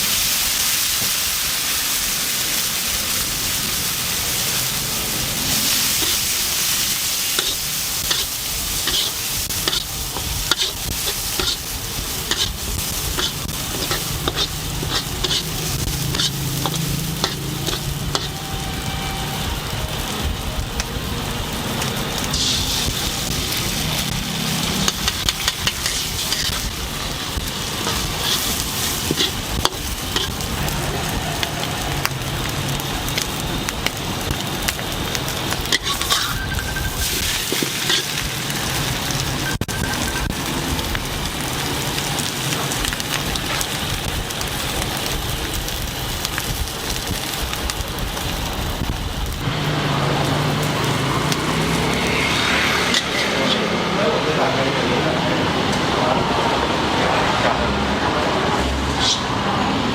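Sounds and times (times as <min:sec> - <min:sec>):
food sizzling in a wok: 0:00.0 - 0:59.9
spatula scraping a pan: 0:07.3 - 0:18.4, 0:24.6 - 0:26.7, 0:27.7 - 0:31.5, 0:35.7 - 0:38.2, 0:52.4 - 0:53.7.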